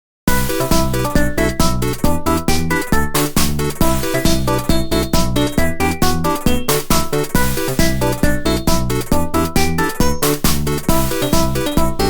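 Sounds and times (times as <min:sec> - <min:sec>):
chiptune music: 0:00.3 - 0:12.0.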